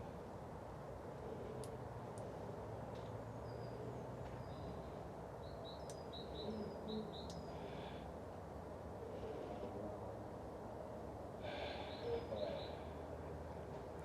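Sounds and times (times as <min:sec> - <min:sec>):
low background hum: 0:00.0 - 0:14.0
birds chirping: 0:01.1 - 0:08.2, 0:11.4 - 0:14.0.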